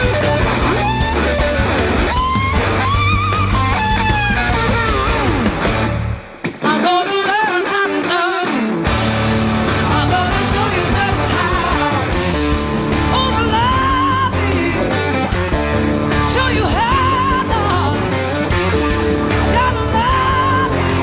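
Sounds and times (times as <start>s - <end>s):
blues-rock band playing: 0.0s - 21.0s
person singing: 6.5s - 8.9s, 9.7s - 12.3s, 13.1s - 15.3s, 16.2s - 18.3s, 19.3s - 21.0s.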